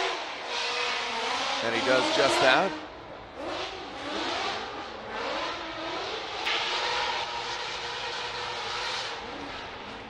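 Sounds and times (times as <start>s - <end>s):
car engine revving hard: 3.4s - 10.0s.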